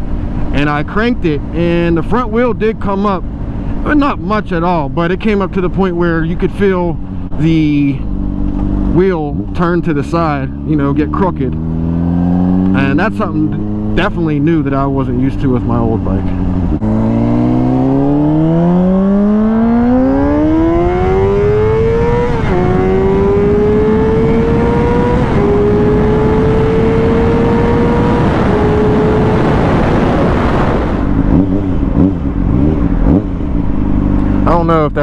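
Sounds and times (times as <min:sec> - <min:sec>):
motorcycle engine accelerating: 0:00.0 - 0:35.0
road noise: 0:00.0 - 0:35.0
wind noise: 0:11.6 - 0:34.4.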